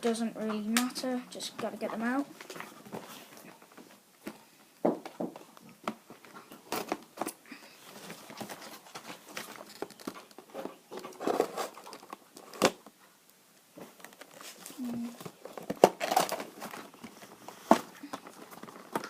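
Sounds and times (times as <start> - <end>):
card and plastic rustling: 5.3 - 13.0, 13.8 - 19.0.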